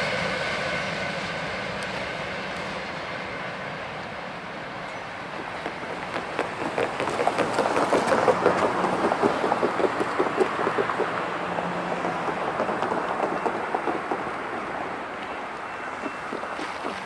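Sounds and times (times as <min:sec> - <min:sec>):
freight train cars rolling: 0:00.0 - 0:17.0
train wheel clicks: 0:05.4 - 0:17.0.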